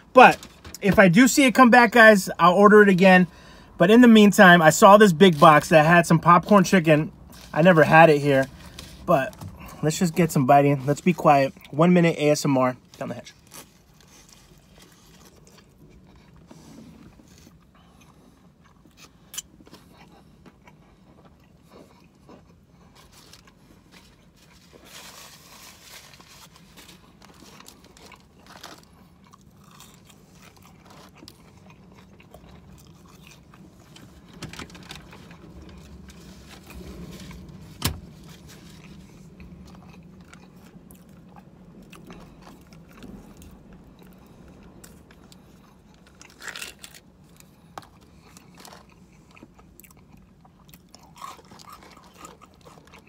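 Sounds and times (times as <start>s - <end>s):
faint low hum: 0.0s - 53.0s
crunchy chewing and biting: 13.0s - 53.0s.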